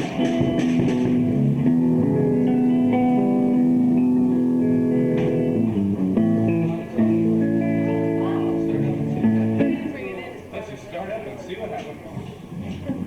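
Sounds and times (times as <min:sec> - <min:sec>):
rock band playing held chords: 0:00.0 - 0:09.7.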